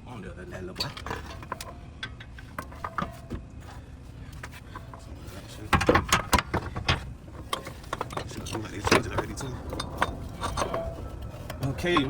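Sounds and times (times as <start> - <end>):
metal tools and car parts clinking: 0.5 - 12.0
loud rattling clanks: 4.7 - 12.0.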